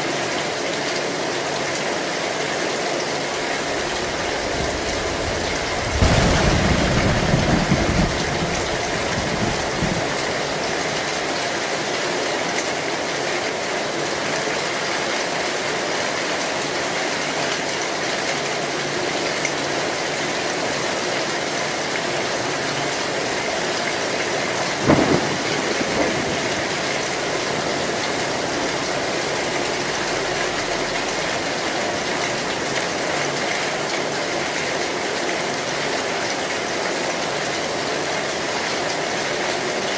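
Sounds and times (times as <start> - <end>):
heavy rain on a metal roof: 0.0 - 39.9
thunder rumbling: 3.5 - 11.4, 23.3 - 33.0.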